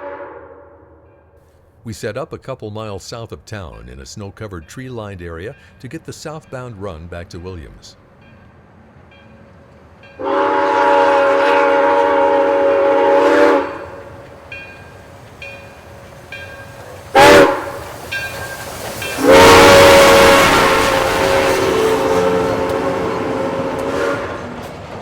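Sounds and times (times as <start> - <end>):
steam locomotive whistle blasts: 0.0 - 0.9, 10.2 - 14.2, 17.1 - 24.6.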